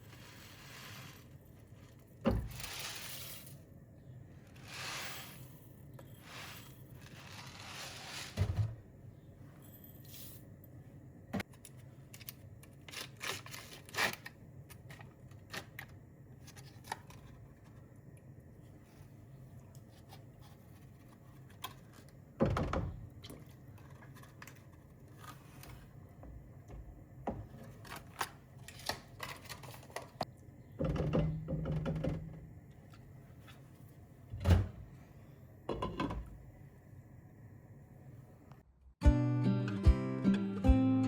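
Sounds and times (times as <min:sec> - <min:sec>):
paper rustling and tearing: 0:07.0 - 0:08.4.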